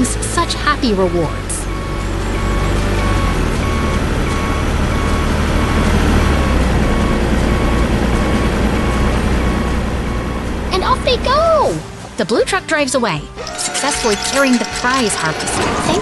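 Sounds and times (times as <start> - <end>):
truck engine rumbling: 0.0 - 16.0
high electronic beeping: 1.6 - 10.9, 13.4 - 16.0.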